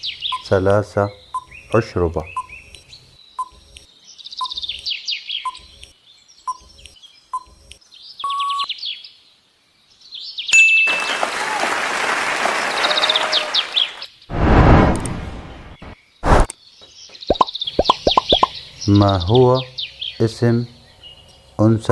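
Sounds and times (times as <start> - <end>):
birds chirping: 0.0 - 10.6, 12.6 - 21.9
loud rushing noise: 14.3 - 16.5.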